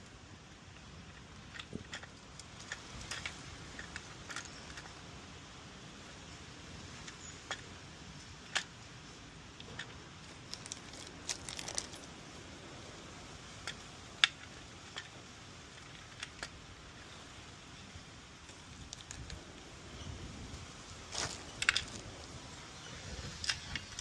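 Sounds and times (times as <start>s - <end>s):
plastic parts clicking and rattling: 0.7s - 5.0s, 9.6s - 12.1s, 13.6s - 16.6s, 18.4s - 19.4s, 21.1s - 22.2s, 23.2s - 24.0s.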